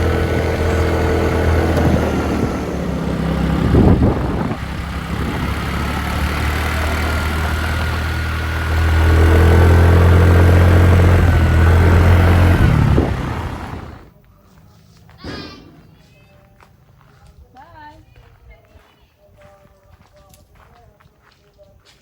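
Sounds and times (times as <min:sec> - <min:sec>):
motorbike engine running: 0:00.0 - 0:14.1.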